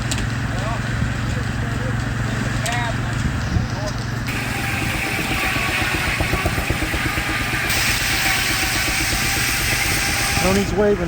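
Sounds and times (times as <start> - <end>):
engine drive pulsing: 0.0 - 11.0
circular saw whining through log: 4.3 - 11.0.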